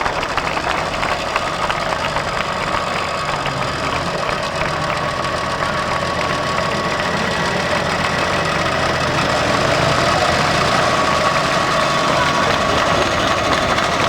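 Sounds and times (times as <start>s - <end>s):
engine idling with whine: 0.0s - 14.0s.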